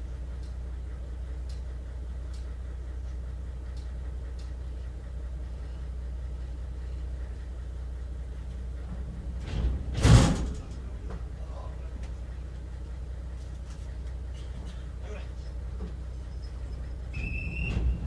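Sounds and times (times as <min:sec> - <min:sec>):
train rumbling from inside: 0:00.0 - 0:18.0
faint ticks: 0:01.4 - 0:01.7, 0:03.7 - 0:04.6.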